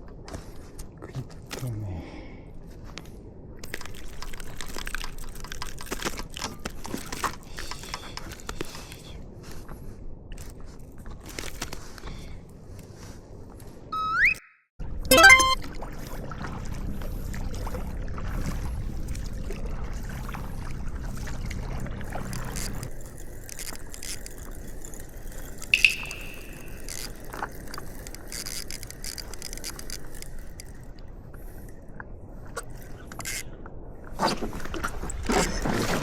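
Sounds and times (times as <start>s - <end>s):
water sloshing and trickling: 3.6s - 12.2s, 15.1s - 36.0s
sharp knock: 25.8s - 26.8s.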